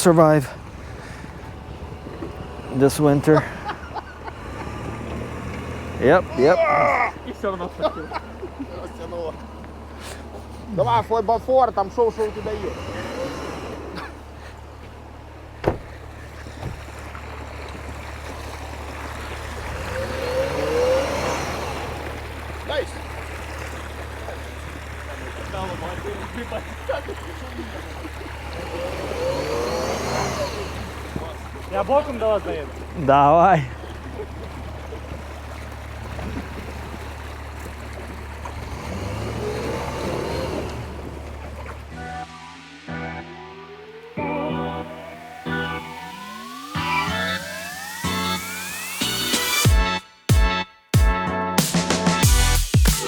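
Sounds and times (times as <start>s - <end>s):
vehicle engine running low: 0.0s - 49.4s
rushing noise: 41.8s - 49.8s.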